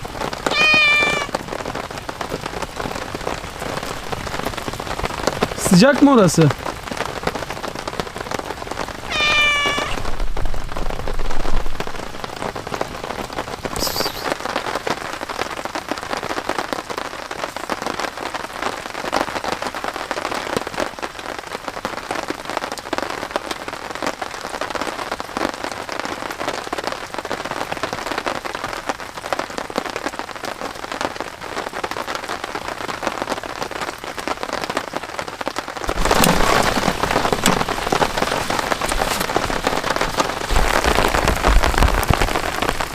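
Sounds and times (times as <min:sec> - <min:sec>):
heavy rain falling: 0:00.0 - 0:42.9
loud noise over rain: 0:00.0 - 0:42.9
cat meowing: 0:00.4 - 0:01.4, 0:09.0 - 0:10.2.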